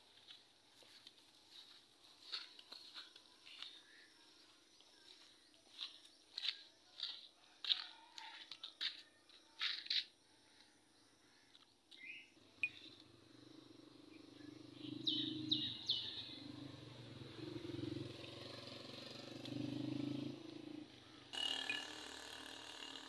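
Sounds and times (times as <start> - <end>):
birds chirping: 13.9 - 16.9.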